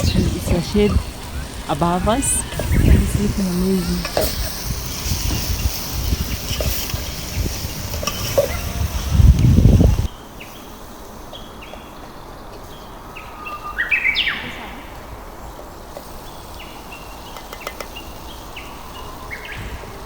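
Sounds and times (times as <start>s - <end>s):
birds whistling falling notes: 0.0s - 10.1s.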